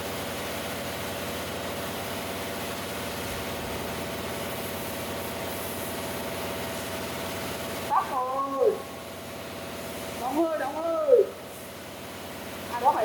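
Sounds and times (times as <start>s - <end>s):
air compressor humming: 0.0s - 13.0s
sandblasting nozzle hissing: 3.2s - 7.8s.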